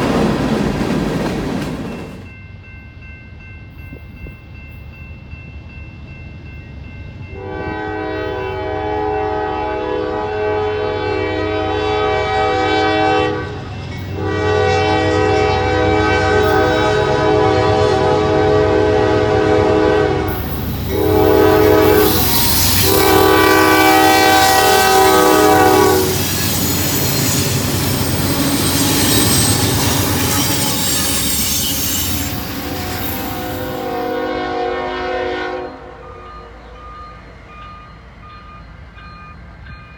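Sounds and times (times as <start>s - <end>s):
train wheels clacking on rails: 0.0s - 2.4s, 20.3s - 34.2s
locomotive air horn: 7.4s - 36.6s.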